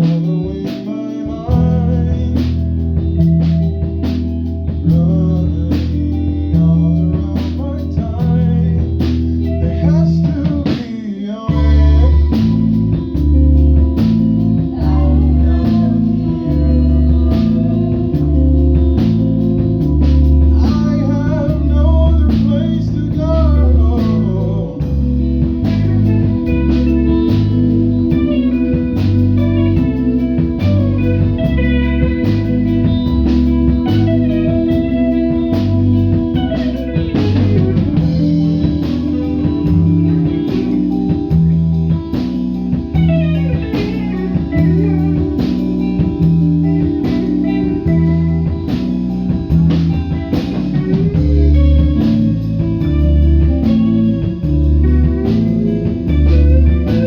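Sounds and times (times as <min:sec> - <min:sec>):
rock band playing: 0:00.0 - 0:57.0
electric guitar slides: 0:11.5 - 0:57.0.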